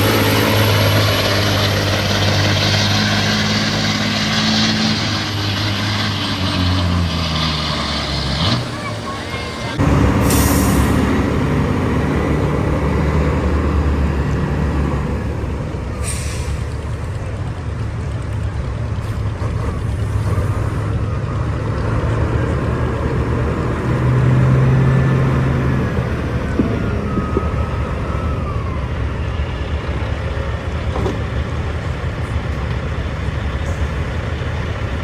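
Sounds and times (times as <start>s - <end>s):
diesel truck engine under load: 0.0s - 35.0s
air hiss bursts: 10.2s - 11.0s.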